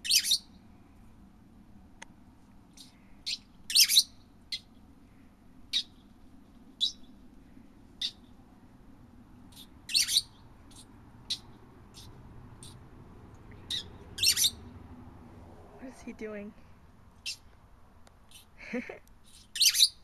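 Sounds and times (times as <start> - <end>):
bird calling loudly: 0.0 - 0.5, 2.8 - 4.6, 9.6 - 12.8, 13.6 - 14.6, 19.5 - 20.0
bird chirping: 0.0 - 0.6, 2.7 - 4.7, 5.7 - 6.0, 6.8 - 7.2, 8.0 - 8.4, 9.4 - 12.8, 13.5 - 14.7, 17.2 - 17.5, 18.3 - 18.6, 19.2 - 20.0.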